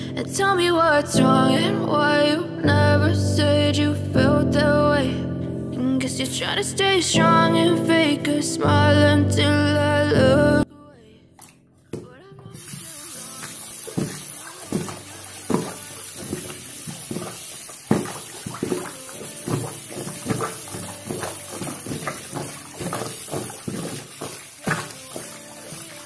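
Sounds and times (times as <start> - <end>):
water splashing in a sink: 11.4 - 26.0.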